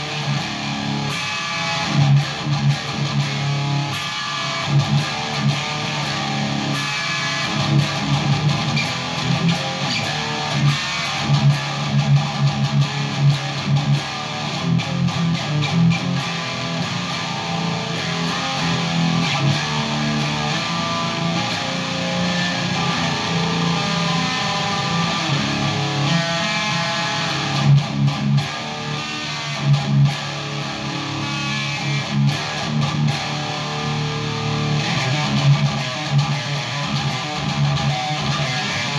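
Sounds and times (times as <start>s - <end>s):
electric guitar heavy riffing: 0.0s - 38.9s.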